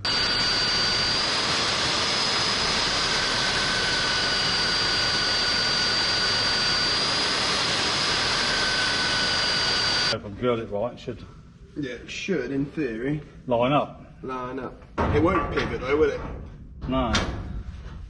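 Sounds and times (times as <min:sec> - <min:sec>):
drill motor whine: 0:00.0 - 0:10.2
hiss of drill cutting steel: 0:00.0 - 0:10.2.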